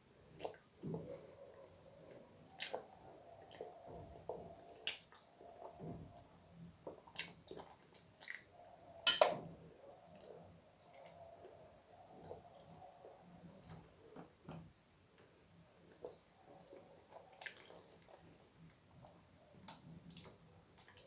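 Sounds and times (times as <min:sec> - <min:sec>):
wet eating smacks: 0:00.4 - 0:08.5, 0:15.9 - 0:18.3.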